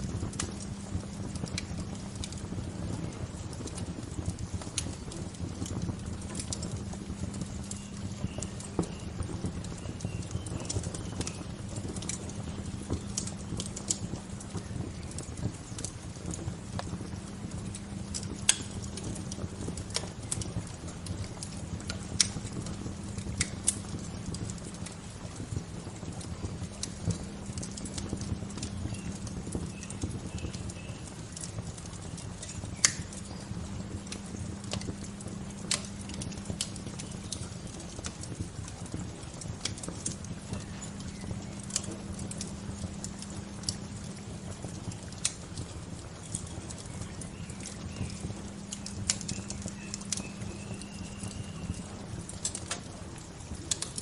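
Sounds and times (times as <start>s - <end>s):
wood fire crackling and popping: 0.0s - 54.0s
faint bird chirps: 49.2s - 51.9s.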